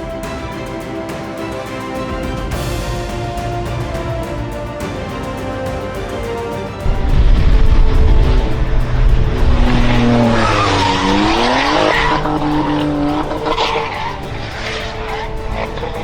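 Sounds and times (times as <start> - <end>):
car tyres skidding: 6.8 - 16.0
engine revving: 6.8 - 16.0.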